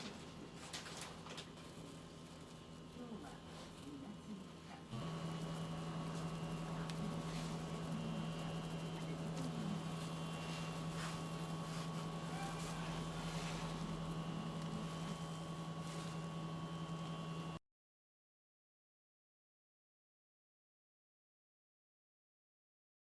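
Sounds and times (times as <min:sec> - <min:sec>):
appliance motor humming: 0:00.0 - 0:17.6.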